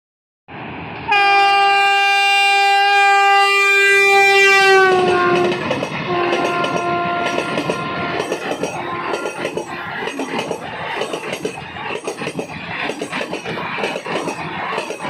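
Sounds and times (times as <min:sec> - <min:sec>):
train horn blast: 0:01.1 - 0:09.4
wheels clattering on rails: 0:04.9 - 0:15.0.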